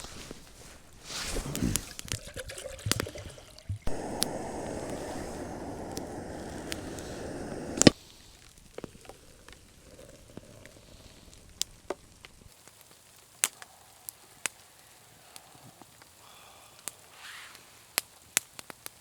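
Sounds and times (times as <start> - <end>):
sharp ticks and pops: 3.8 - 16.1
loud click: 3.9 - 8.0.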